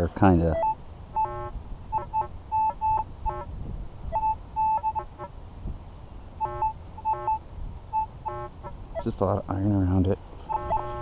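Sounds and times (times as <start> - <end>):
metal detector beeping: 0.5 - 3.4, 4.1 - 5.2, 6.4 - 9.1, 10.5 - 11.0.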